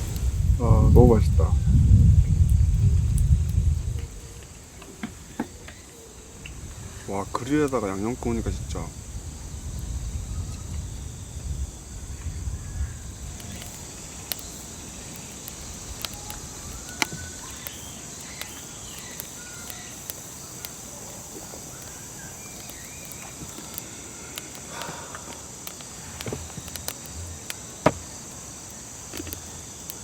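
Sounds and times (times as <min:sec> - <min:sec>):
low rumble: 0:00.0 - 0:04.2
insects chirring: 0:00.0 - 0:30.0
light clicks: 0:13.4 - 0:27.6.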